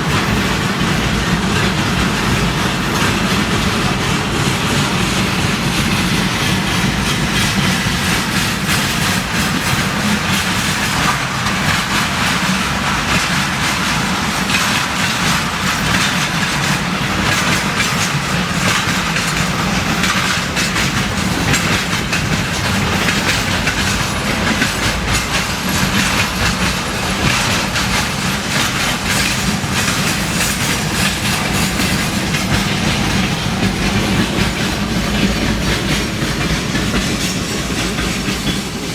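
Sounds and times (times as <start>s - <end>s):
train wheels clattering on track: 0.0s - 38.9s.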